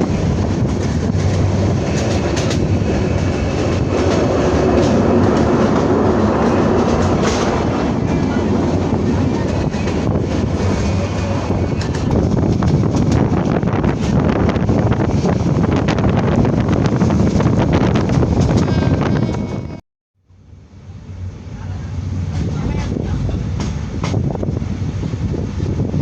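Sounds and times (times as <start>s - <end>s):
wheels clacking over rail joints: 0.0s - 14.4s
train rumbling on rails: 0.0s - 26.0s.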